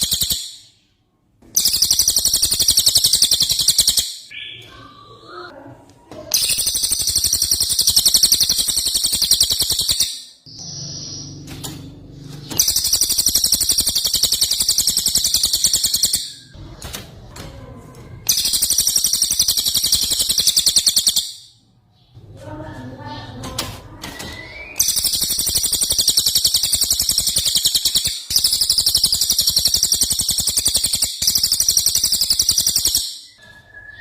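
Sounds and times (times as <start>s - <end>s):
bird singing rapid trills: 0.0s - 0.8s, 1.6s - 5.4s, 6.4s - 16.6s, 18.2s - 22.2s, 24.2s - 34.0s.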